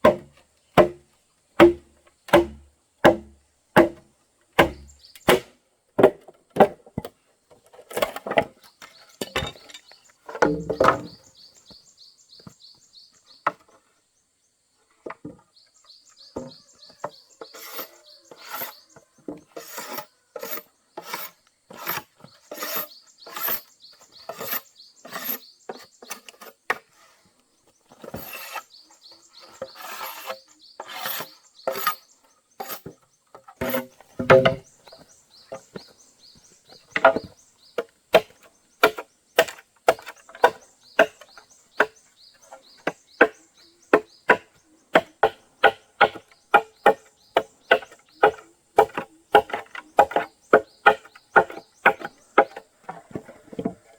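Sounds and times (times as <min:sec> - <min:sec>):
tool knocking on wood: 0:01.6 - 0:04.0, 0:10.4 - 0:11.2, 0:33.6 - 0:34.6
scraping on wood: 0:16.4 - 0:27.2, 0:27.9 - 0:36.0, 0:36.8 - 0:53.9.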